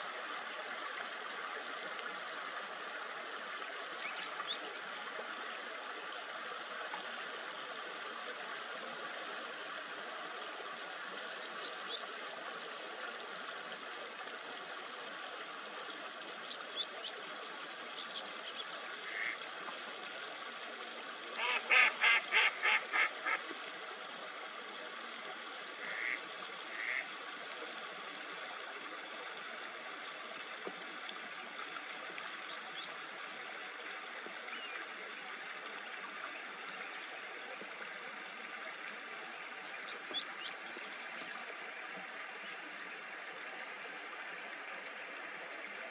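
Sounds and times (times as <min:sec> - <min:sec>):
babbling stream: 0:00.0 - 0:45.9
duck quacking: 0:21.4 - 0:23.4.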